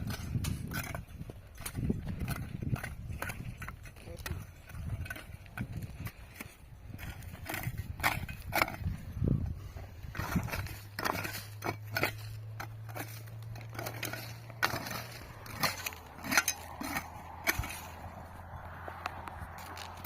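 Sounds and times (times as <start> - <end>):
hand tools scraping wet cement: 0.0 - 20.0.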